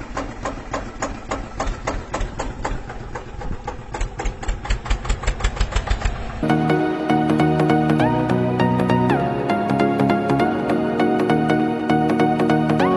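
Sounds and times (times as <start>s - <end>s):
tractor engine knocking: 0.0s - 6.5s.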